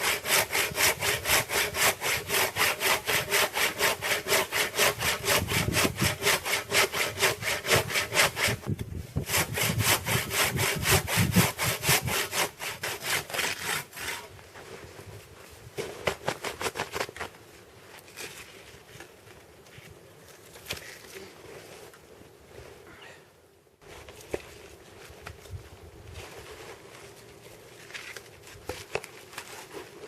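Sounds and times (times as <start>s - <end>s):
hand saw cutting a log: 0.0s - 14.4s.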